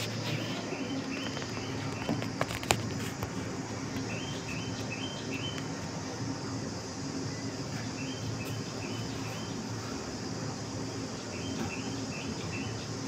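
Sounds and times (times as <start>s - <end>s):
high-pitched hiss: 0.0s - 13.0s
small birds chirping: 0.0s - 13.0s.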